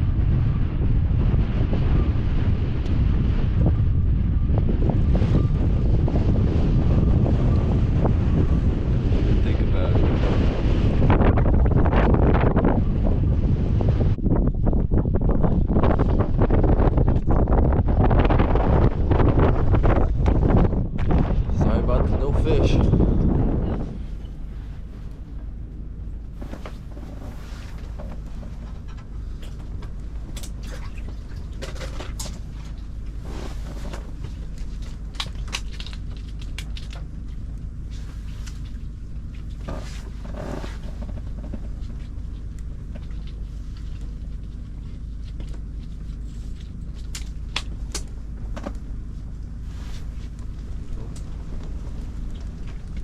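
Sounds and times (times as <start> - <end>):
wind rumbling on microphone: 0.0 - 53.0.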